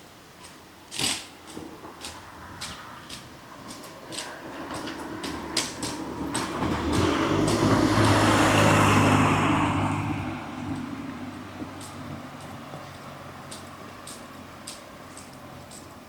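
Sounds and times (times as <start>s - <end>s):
footsteps clicking: 0.4s - 16.0s
vehicle driving past: 4.3s - 15.7s.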